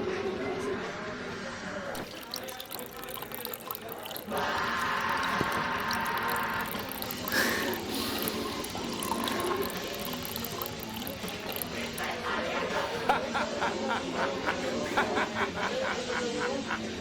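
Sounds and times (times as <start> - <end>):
water running: 1.9 - 12.4.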